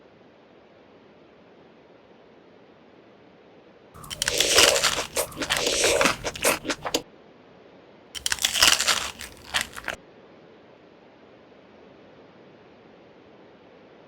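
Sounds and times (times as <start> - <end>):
crunchy food being chewed: 4.0 - 7.0, 8.2 - 10.0.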